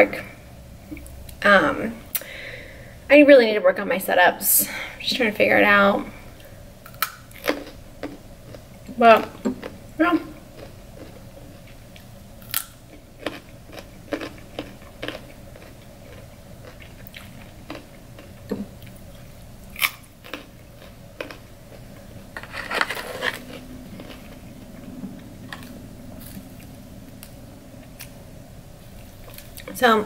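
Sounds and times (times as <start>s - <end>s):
crisp chewing crunches: 6.9s - 8.7s, 10.6s - 28.2s.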